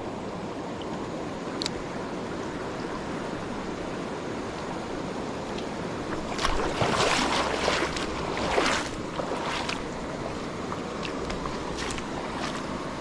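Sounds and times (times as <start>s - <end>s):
stream water rushing: 0.0s - 13.0s
irregular splashing: 6.1s - 12.9s.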